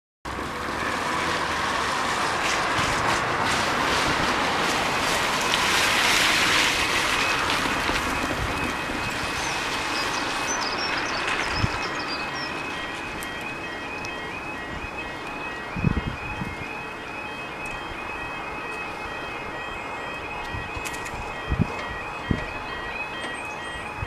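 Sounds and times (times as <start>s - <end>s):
train passing: 0.3s - 24.0s.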